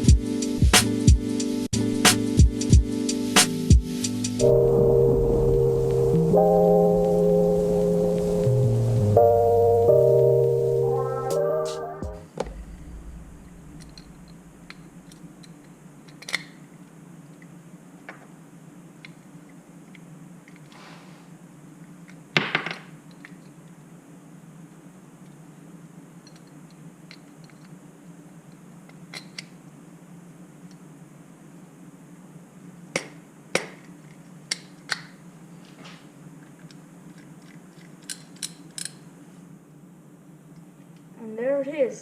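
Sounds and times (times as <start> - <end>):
steady low hum: 0.0 - 16.1.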